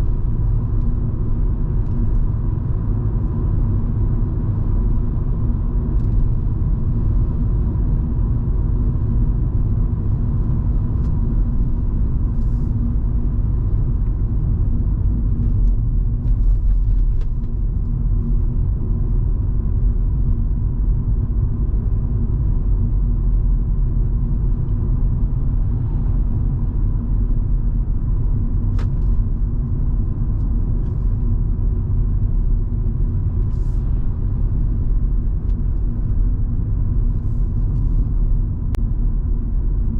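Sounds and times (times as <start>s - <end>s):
car engine and tyres droning: 0.0s - 39.9s.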